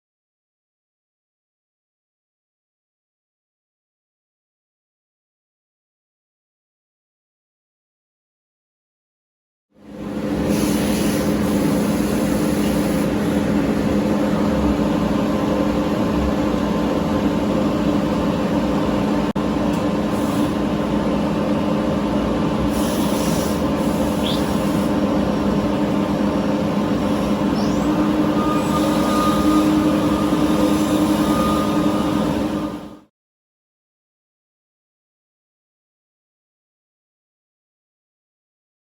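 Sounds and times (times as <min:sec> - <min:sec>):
higher machine tone: 0:25.7 - 0:33.1
faint rising squeaks: 0:27.2 - 0:33.0.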